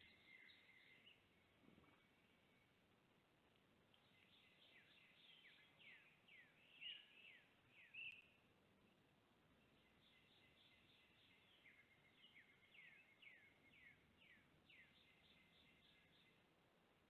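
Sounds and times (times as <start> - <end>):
songbirds whistling: 0.0 - 1.2, 4.0 - 8.4.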